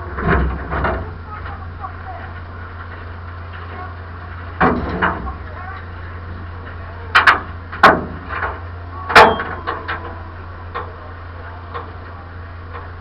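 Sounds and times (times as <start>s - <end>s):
steady low hum: 0.0s - 13.0s
sharp knocks and bangs: 7.2s - 10.0s.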